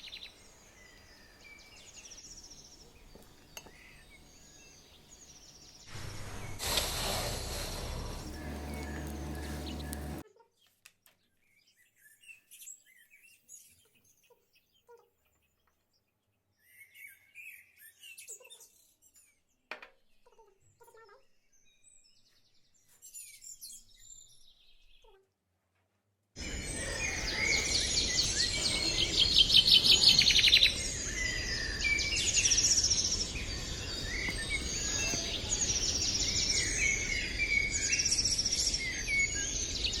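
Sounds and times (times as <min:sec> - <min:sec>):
songbirds chirping in chorus: 0:00.0 - 0:05.9, 0:08.1 - 0:10.2, 0:26.4 - 0:40.0.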